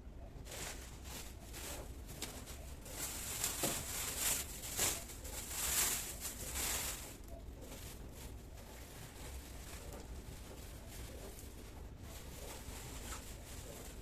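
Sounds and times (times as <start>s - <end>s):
groceries rustling and crinkling: 0.1s - 14.0s.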